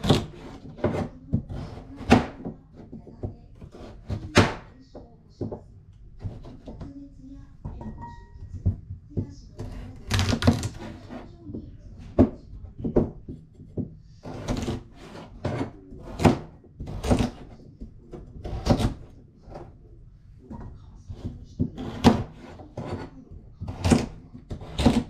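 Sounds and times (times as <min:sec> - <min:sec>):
knife on cutting board: 0:00.0 - 0:02.9, 0:03.6 - 0:04.6, 0:14.2 - 0:17.6, 0:21.1 - 0:23.1, 0:23.7 - 0:25.0.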